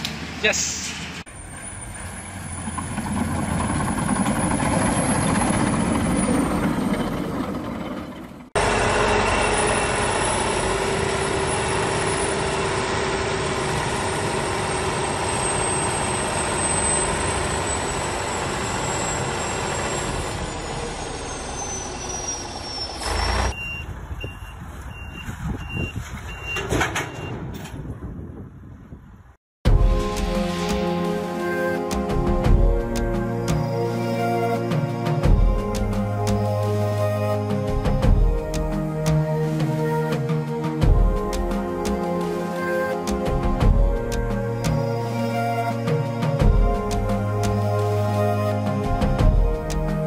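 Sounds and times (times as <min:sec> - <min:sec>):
heavy equipment engines running: 0:01.0 - 0:24.1, 0:30.0 - 0:50.0
backup alarm beeping: 0:23.5 - 0:27.4.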